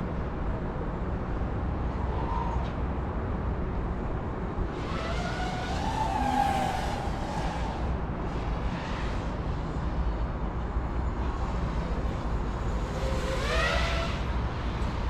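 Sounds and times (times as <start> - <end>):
low wind rumble: 0.0 - 15.0
drone motors whining: 12.1 - 15.0.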